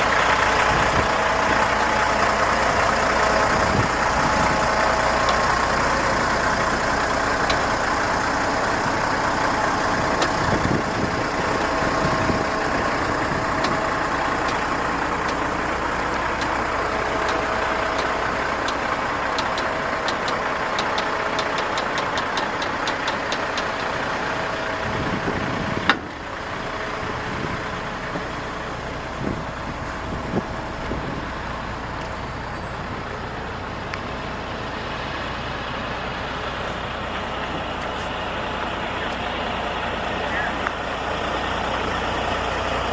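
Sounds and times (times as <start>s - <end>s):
truck engine running: 0.0s - 42.9s
fast ticking: 12.6s - 24.0s.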